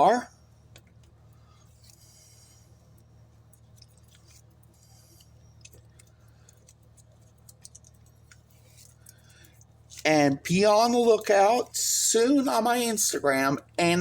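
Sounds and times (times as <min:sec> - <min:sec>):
steady low hum: 0:00.0 - 0:14.0
light clicks and paper rustling: 0:00.7 - 0:10.1.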